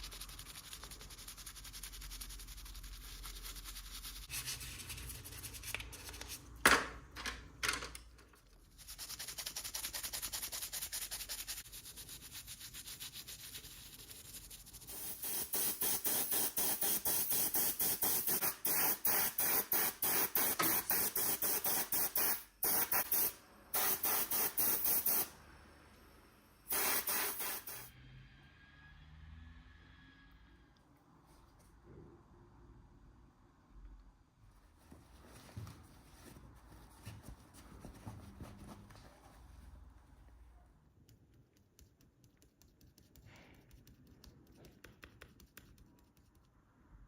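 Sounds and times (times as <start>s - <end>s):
rapid rubbing strokes: 0.0s - 5.6s.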